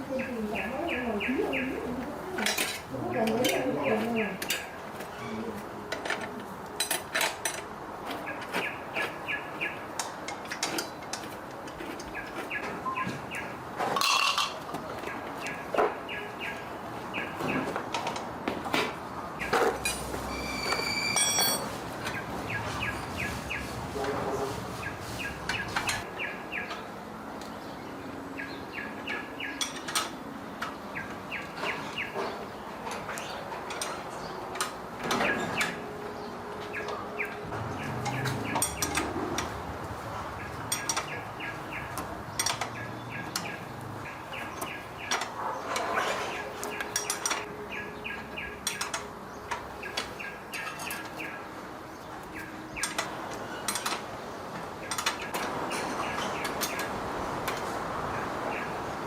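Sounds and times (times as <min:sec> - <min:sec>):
small birds chirping: 0:00.0 - 0:05.6, 0:08.1 - 0:13.7, 0:14.8 - 0:17.9, 0:22.0 - 0:23.8, 0:24.7 - 0:59.0
sharp clicks and knocks: 0:52.8 - 0:57.7.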